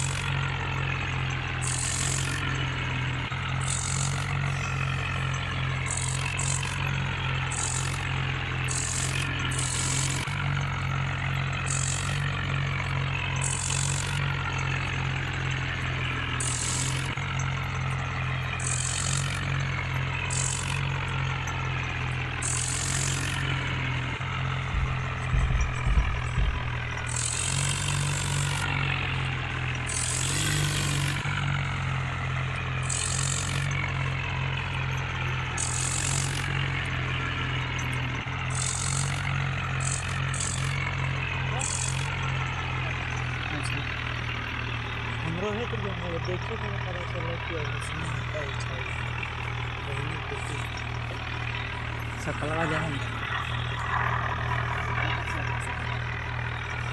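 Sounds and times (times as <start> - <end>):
tractor diesel engine running: 0.0 - 56.9
low bumps: 24.5 - 27.4.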